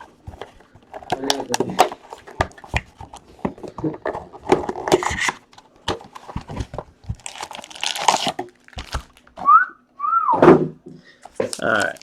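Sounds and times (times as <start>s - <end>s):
plastic packaging crinkling and tearing: 0.0s - 3.4s, 4.2s - 9.4s, 11.4s - 12.0s.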